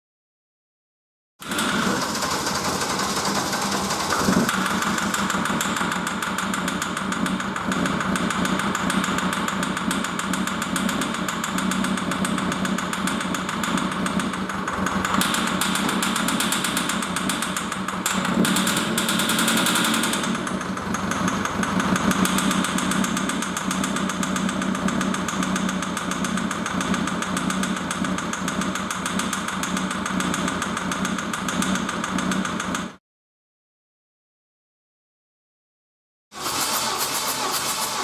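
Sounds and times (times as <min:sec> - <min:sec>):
diesel engine idling: 0:01.5 - 0:18.9, 0:19.7 - 0:29.0, 0:36.4 - 0:38.0.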